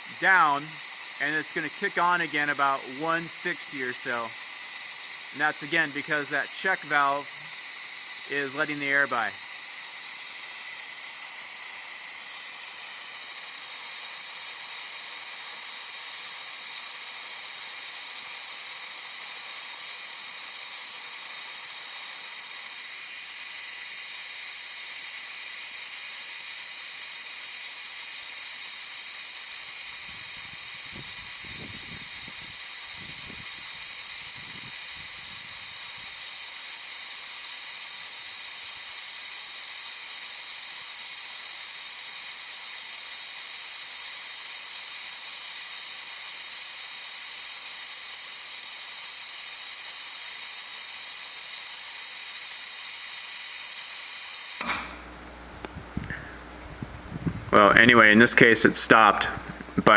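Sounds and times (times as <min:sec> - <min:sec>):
compressed air hissing: 0:00.0 - 0:14.5, 0:27.6 - 0:56.7.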